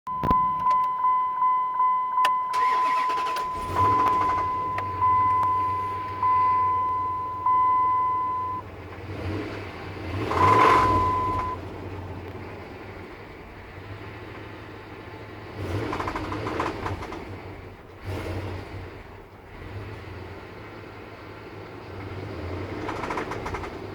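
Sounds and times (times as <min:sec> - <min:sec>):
dashboard warning chime: 0:00.0 - 0:08.7, 0:10.2 - 0:11.6
short steady tone: 0:00.1 - 0:08.6, 0:10.3 - 0:11.6
starter cranking: 0:02.5 - 0:05.5, 0:22.8 - 0:23.8
engine running: 0:02.5 - 0:23.9.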